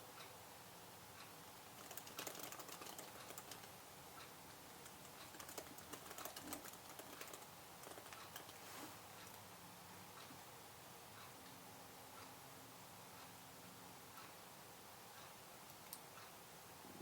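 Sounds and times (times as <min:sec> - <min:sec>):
keyboard typing: 0:01.6 - 0:03.8, 0:04.8 - 0:08.6.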